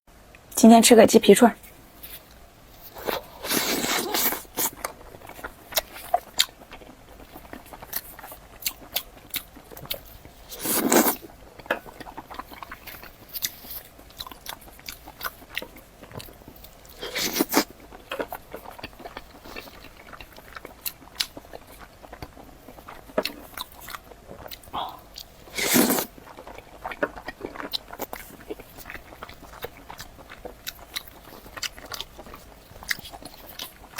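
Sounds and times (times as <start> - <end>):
wet chewing: 1.6 - 33.9
crunching bites: 7.6 - 11.2, 14.3 - 17.7, 23.0 - 33.9.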